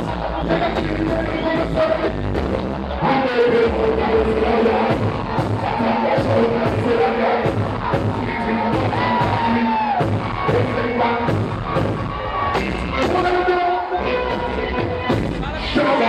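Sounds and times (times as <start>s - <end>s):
steady drum beat: 0.0s - 2.8s, 3.5s - 16.0s
person singing: 0.0s - 11.4s
live band music: 0.0s - 16.0s.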